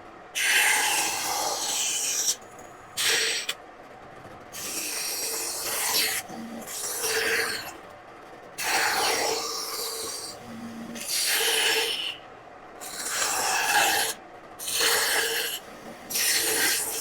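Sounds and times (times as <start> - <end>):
long scraping strokes on woodblock: 0.4 - 2.4, 4.6 - 7.8, 8.6 - 12.2, 12.8 - 17.0.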